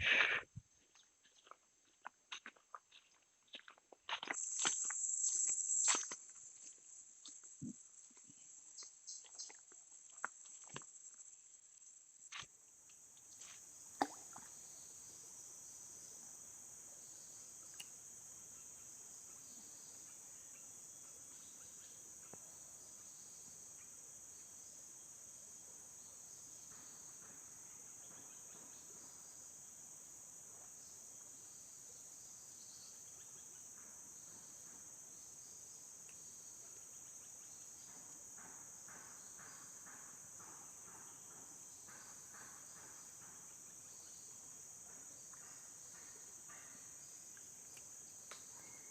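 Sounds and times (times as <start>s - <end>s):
crickets trilling: 0.0s - 48.9s
faint pulsed insect calls: 0.0s - 48.9s.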